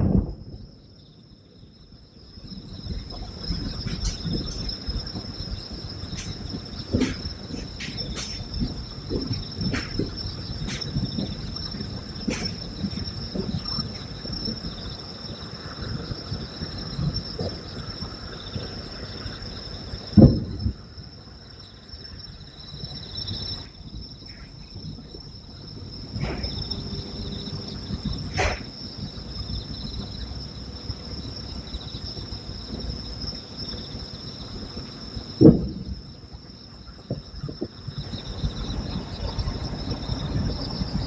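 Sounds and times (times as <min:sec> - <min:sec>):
distant firework booms: 0:00.0 - 0:00.8, 0:02.8 - 0:14.6, 0:20.1 - 0:20.8, 0:35.4 - 0:36.1
night insects chirring: 0:00.0 - 0:41.0.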